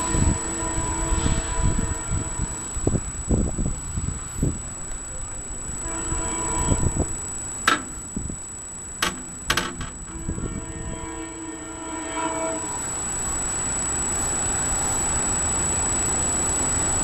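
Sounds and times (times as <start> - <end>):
train horn chord: 0.0 - 3.7, 5.3 - 8.6, 9.6 - 13.8
wind buffeting microphone: 0.0 - 11.1.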